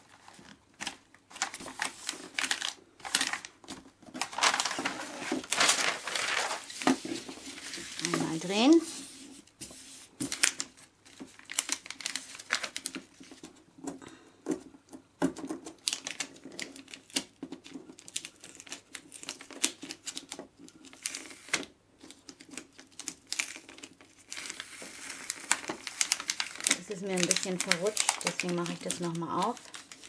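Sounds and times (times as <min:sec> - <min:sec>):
plastic film crackling and clicking: 0:00.1 - 0:08.8, 0:10.2 - 0:14.0, 0:15.3 - 0:30.0.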